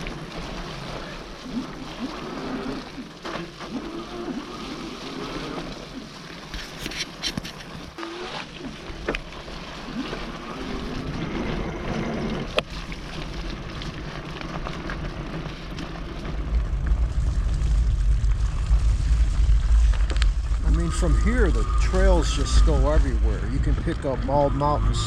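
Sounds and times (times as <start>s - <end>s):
bicycle tyre and drivetrain noise: 0.0s - 25.0s
heavy low rumble: 10.6s - 25.0s.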